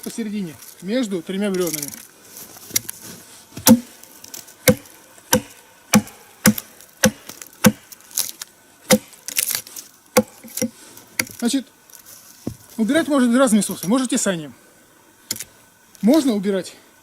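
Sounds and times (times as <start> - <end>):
axe chopping log: 3.6 - 4.0, 4.6 - 7.9, 8.9 - 9.6, 10.2 - 11.4.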